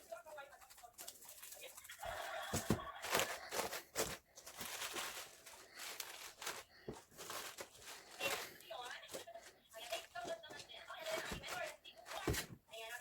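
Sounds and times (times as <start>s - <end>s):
vegetables being cut: 2.6s - 12.6s.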